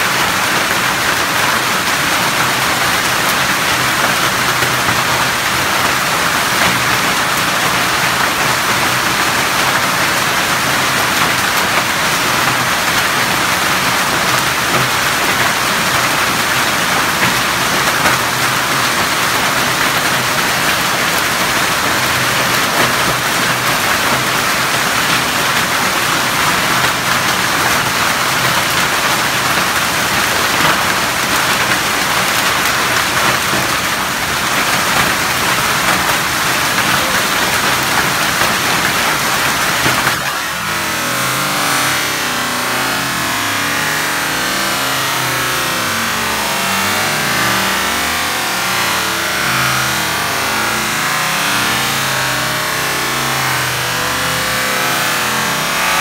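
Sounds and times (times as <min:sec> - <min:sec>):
heavy rain and hail falling: 0:00.0 - 0:56.0.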